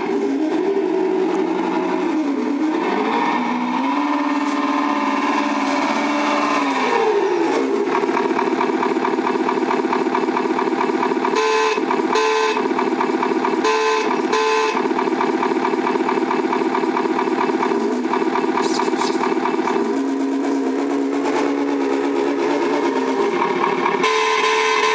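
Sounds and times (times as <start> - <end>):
simulated truck engine rumble: 0.0 - 24.9
simulated air horn blasts: 1.1 - 16.5, 23.8 - 24.9.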